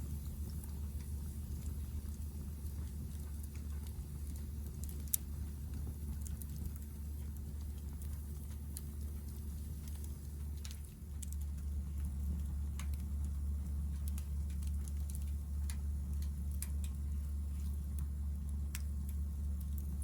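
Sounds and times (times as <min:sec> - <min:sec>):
fire low rumble: 0:00.0 - 0:20.0
firewood crackling and popping: 0:00.1 - 0:20.0.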